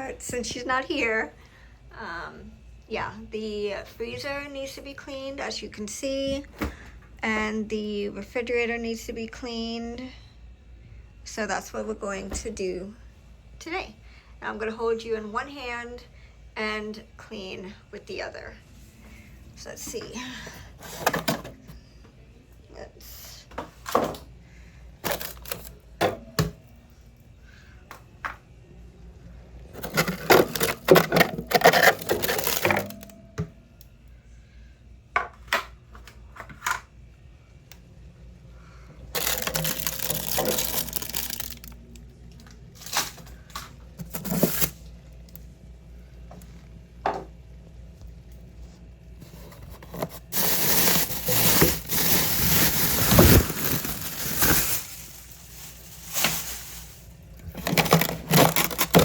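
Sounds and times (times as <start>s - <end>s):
scrubbing: 50.0s - 59.0s.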